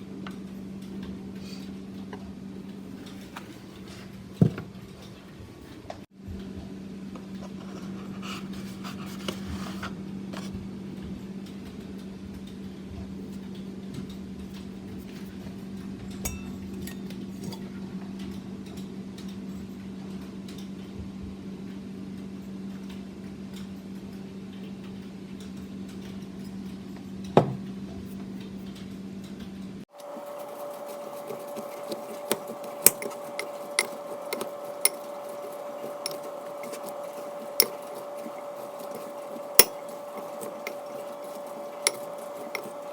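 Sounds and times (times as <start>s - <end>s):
higher steady hum: 29.9s - 42.9s
kitchen utensils clicking: 30.0s - 42.9s.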